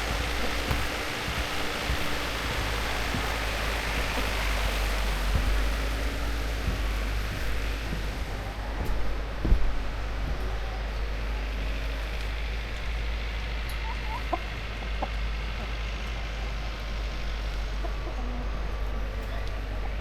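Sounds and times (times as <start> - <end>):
chickens clucking: 0.0 - 5.6, 13.7 - 15.8, 17.7 - 18.7
outdoor background noise: 0.0 - 20.0.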